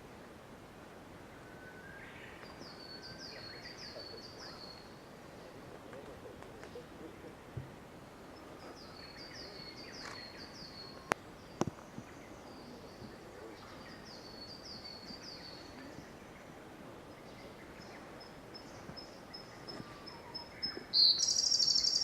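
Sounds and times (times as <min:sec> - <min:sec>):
bird singing trills: 0:17.2 - 0:22.0.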